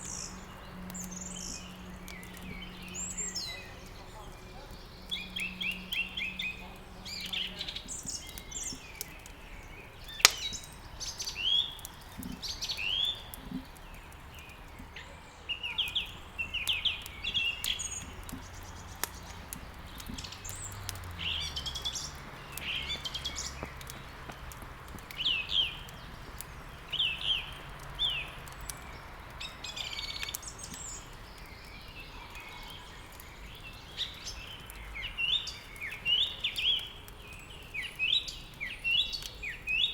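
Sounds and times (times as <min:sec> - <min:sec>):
songbirds chirping and trilling: 0:00.0 - 0:39.9
wood crackling in fireplace: 0:00.0 - 0:39.9
loud pop of burning wood: 0:07.2 - 0:15.0, 0:15.8 - 0:32.0.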